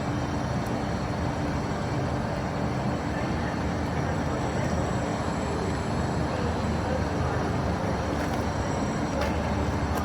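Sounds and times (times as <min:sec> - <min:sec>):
electric trains rumbling: 0:04.9 - 0:10.0.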